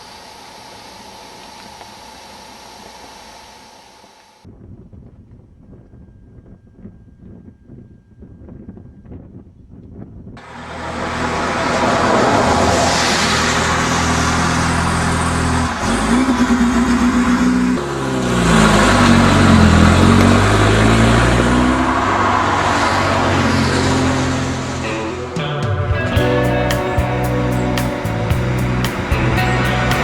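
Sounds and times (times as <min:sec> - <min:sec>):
cars driving past: 0:10.4 - 0:30.0.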